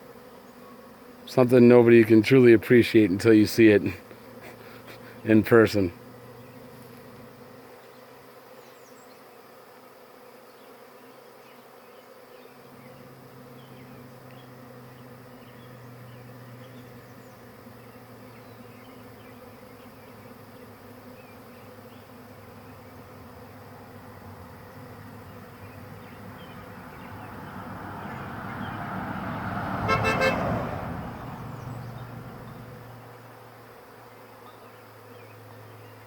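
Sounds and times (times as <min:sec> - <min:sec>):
bee swarm buzzing: 0:00.0 - 0:36.0
low bee drone: 0:00.0 - 0:36.0.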